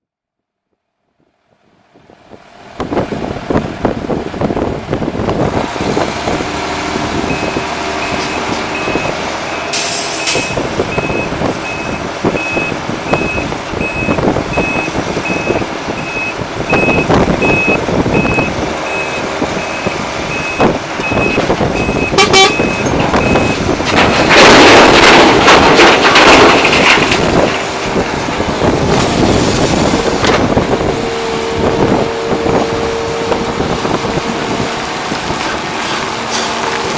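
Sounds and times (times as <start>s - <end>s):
diesel engines running: 1.3s - 36.9s
rough machinery noise: 2.7s - 36.9s
reversing beeper: 7.3s - 23.6s.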